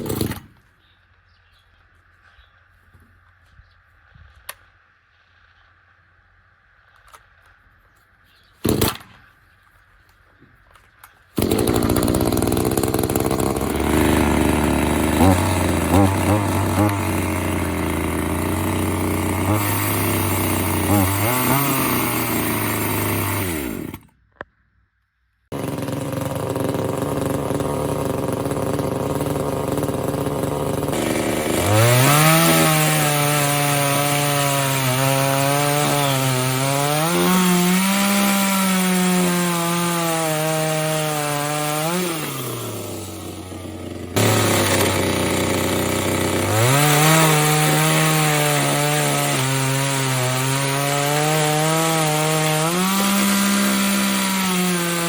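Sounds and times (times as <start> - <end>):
chainsaw idling: 0.0 - 0.5, 11.4 - 24.1, 25.5 - 55.0
chainsaw cutting wood: 0.0 - 0.7, 8.6 - 9.3, 11.3 - 24.3, 25.5 - 55.0.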